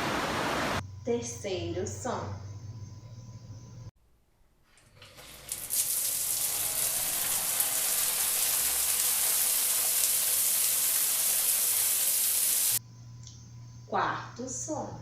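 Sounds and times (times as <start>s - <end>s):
water running: 4.8s - 12.8s.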